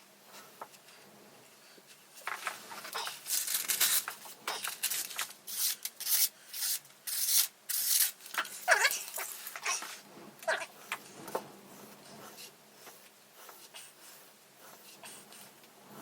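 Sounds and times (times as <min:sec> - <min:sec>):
knife blade rubbing: 0:04.9 - 0:10.0.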